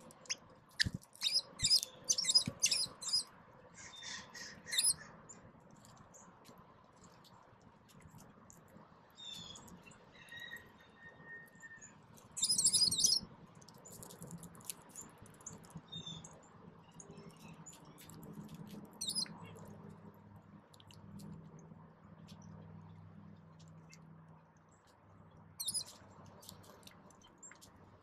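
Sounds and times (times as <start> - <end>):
rapid bird twittering: 0.2 - 5.1, 11.7 - 13.2, 19.0 - 19.4, 25.6 - 26.0
small songbirds chirping: 0.2 - 6.4, 9.1 - 14.2, 14.8 - 18.2, 19.0 - 19.6, 22.2 - 28.0.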